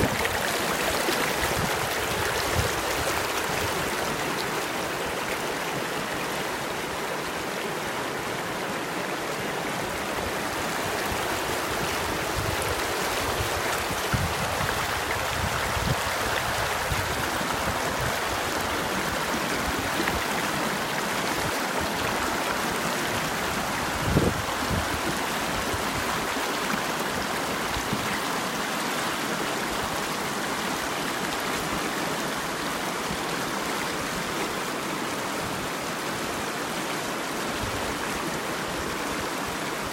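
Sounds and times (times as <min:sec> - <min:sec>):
water splashes: 0:00.0 - 0:07.5
river running over rocks: 0:00.0 - 0:39.9.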